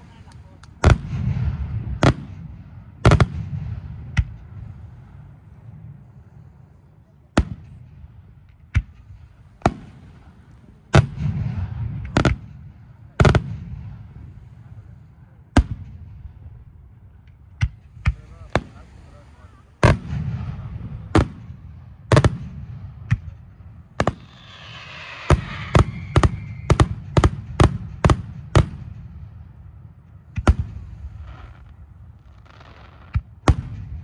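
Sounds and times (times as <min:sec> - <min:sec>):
low rolling echo: 0:00.0 - 0:34.0
firework shells bursting: 0:23.9 - 0:28.7.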